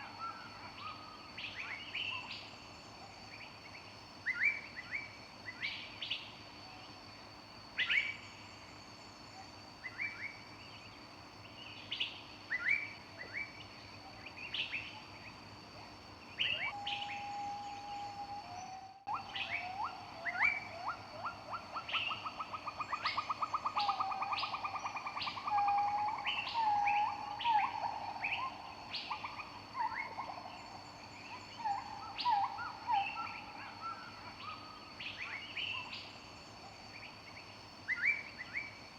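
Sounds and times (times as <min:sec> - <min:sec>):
faint high steady tone: 0:12.6 - 0:37.0
bird whistled notes and trill: 0:16.4 - 0:20.6.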